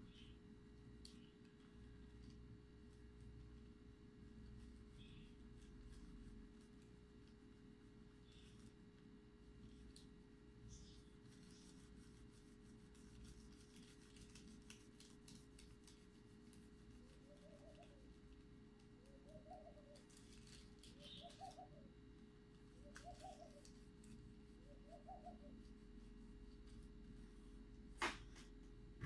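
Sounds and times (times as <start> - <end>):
faint electrical hum: 0.0 - 29.0
faint clicks and rustles: 0.1 - 29.0
bird cooing: 17.3 - 18.0, 19.0 - 20.2, 20.9 - 21.9, 22.8 - 23.7, 24.7 - 25.6.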